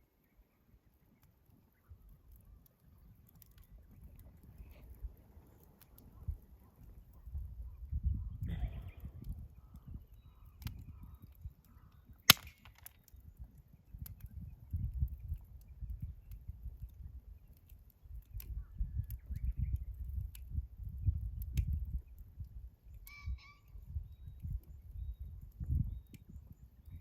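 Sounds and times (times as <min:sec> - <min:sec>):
campfire crackling: 0:00.3 - 0:23.1
sharp pops of burning wood: 0:12.2 - 0:22.3.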